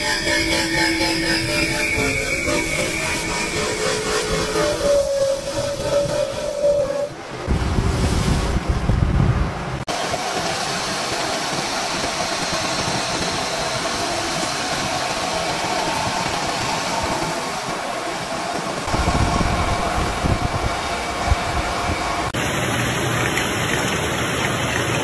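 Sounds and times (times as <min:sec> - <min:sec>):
lathe machine hiss: 0:00.0 - 0:07.2, 0:09.9 - 0:22.4.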